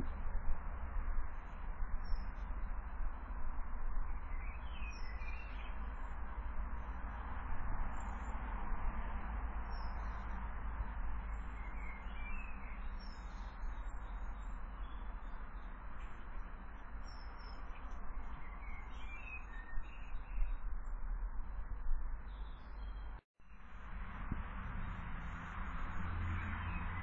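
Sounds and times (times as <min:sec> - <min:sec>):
small birds chirping: 0:01.4 - 0:02.6, 0:04.1 - 0:07.2, 0:09.6 - 0:21.6, 0:22.2 - 0:23.6.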